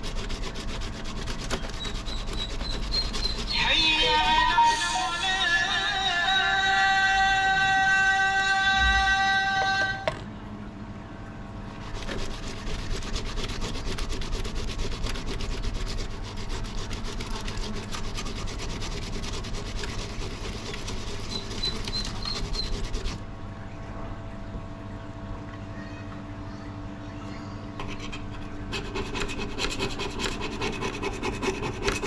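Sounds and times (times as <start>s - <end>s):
hand scrubbing axe: 0.0s - 4.6s, 11.9s - 23.2s, 27.8s - 32.0s.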